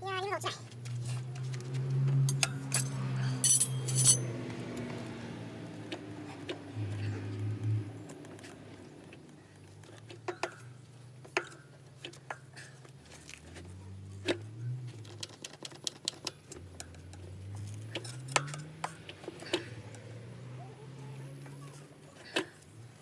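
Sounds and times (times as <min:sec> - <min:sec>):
metal tools clicking and tapping: 0:02.3 - 0:04.4.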